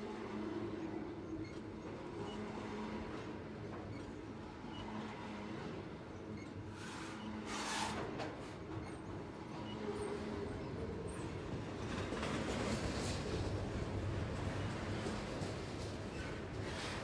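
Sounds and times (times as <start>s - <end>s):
train wheels rumbling on rails: 10.8s - 17.0s.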